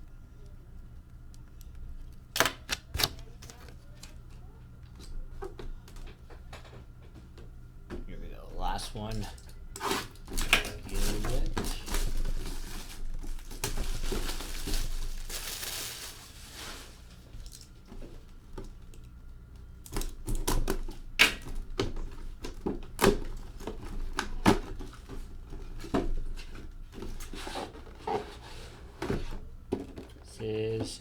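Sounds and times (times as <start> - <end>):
packaging rustling: 9.0 - 18.3.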